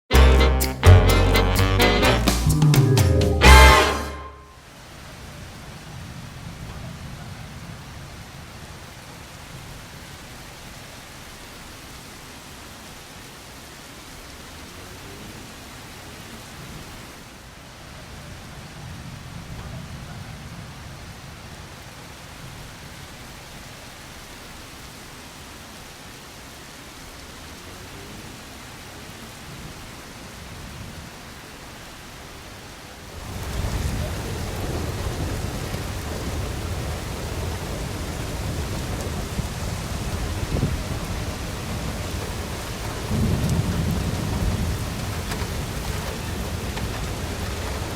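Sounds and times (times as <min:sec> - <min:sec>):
rain falling steadily: 0:00.1 - 0:47.9
low rolling thunder: 0:33.2 - 0:47.9.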